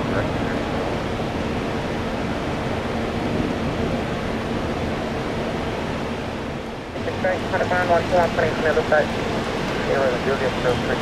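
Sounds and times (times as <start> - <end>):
jet engine rushing: 0.0 - 11.0.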